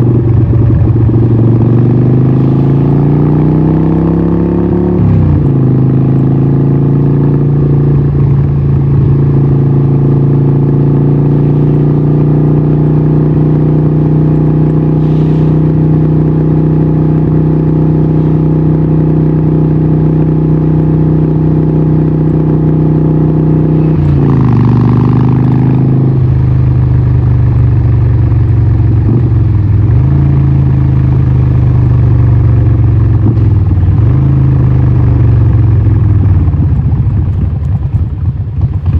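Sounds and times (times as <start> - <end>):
motorcycle engine running loud: 0.0 - 38.9.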